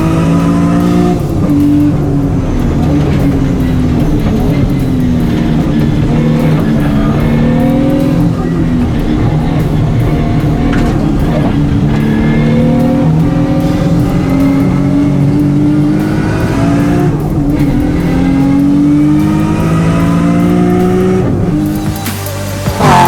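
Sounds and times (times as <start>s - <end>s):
race car engine at full throttle: 0.0s - 23.0s.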